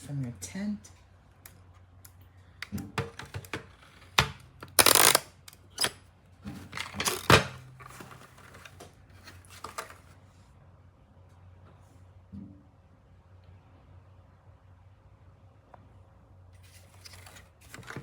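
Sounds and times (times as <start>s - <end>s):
plastic clicks and knocks: 2.6s - 5.6s.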